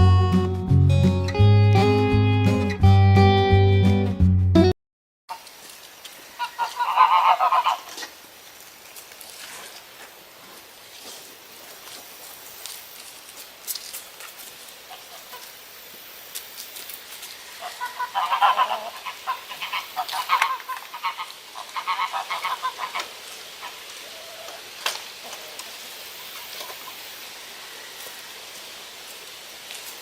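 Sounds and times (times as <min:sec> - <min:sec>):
poultry calling rapidly: 0:06.4 - 0:08.0, 0:17.4 - 0:25.6.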